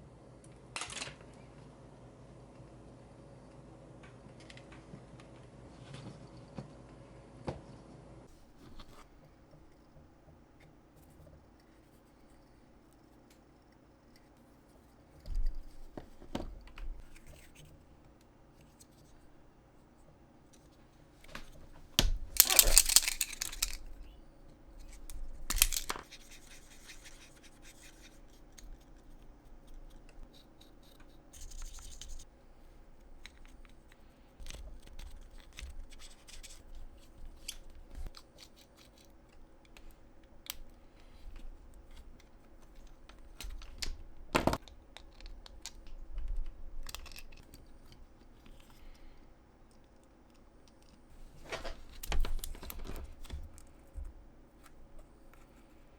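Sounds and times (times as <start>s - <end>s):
scratching and rubbing craft materials: 8.3s - 49.2s.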